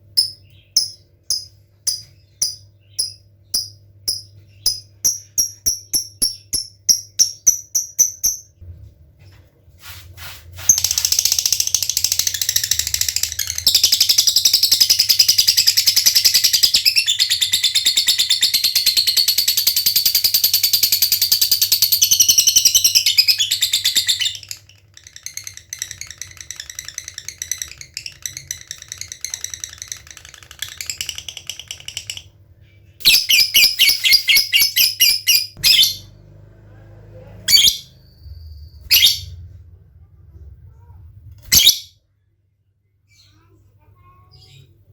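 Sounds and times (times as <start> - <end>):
lovebird ticking chirps: 0.2 - 8.5.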